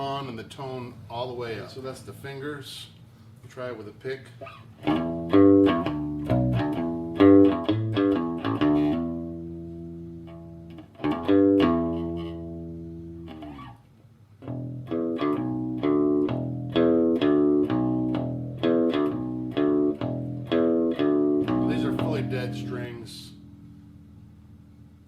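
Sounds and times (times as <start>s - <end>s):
electric bass guitar picked notes: 4.8s - 13.8s, 14.4s - 25.0s.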